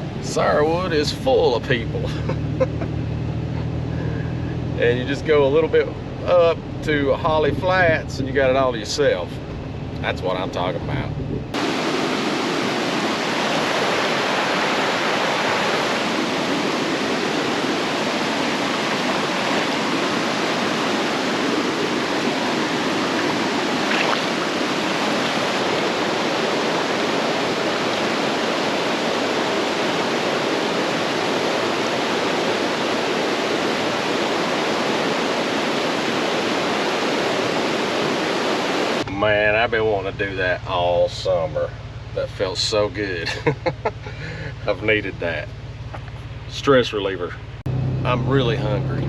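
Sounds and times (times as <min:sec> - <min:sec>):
rushing water: 0:11.5 - 0:39.1.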